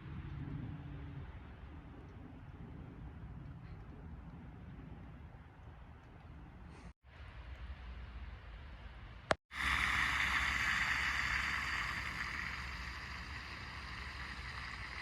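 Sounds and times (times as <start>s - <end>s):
faint low hum: 0.0s - 15.0s
steady rushing noise: 9.5s - 15.0s.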